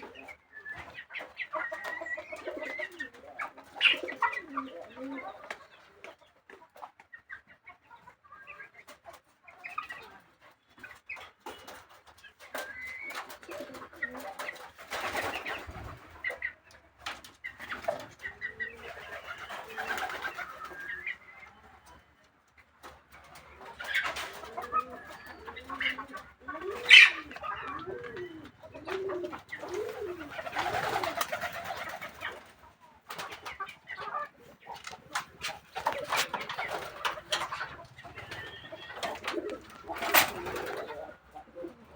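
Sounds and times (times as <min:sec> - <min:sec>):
pigeons cooing: 0:00.0 - 0:06.1, 0:12.6 - 0:16.6, 0:17.5 - 0:21.3, 0:23.5 - 0:41.9.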